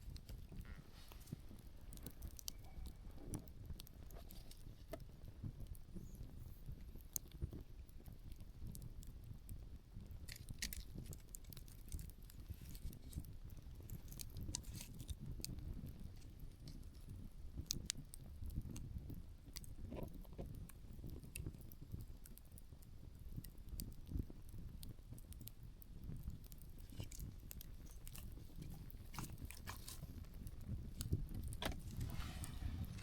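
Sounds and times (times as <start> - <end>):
campfire crackling: 0.0 - 33.0
firewood popping: 0.0 - 33.0
light wind rumble: 26.0 - 33.0.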